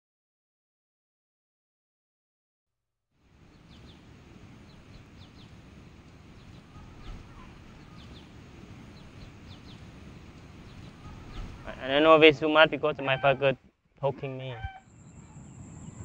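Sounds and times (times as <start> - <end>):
steady low noise: 3.2 - 16.0
birds chirping: 3.4 - 16.0.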